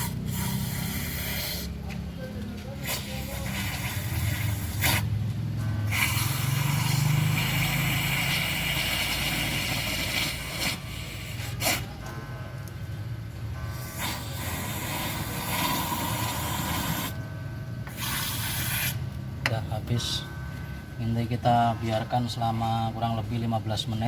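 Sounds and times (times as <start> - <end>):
aerosol can hissing: 14.0 - 17.1, 17.9 - 19.0.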